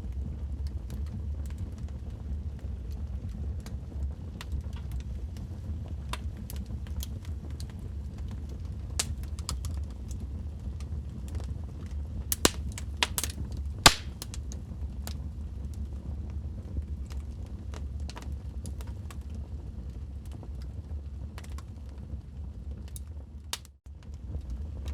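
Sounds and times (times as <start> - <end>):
low rumble of flames: 0.0 - 24.9
fire crackling and popping: 1.0 - 15.2.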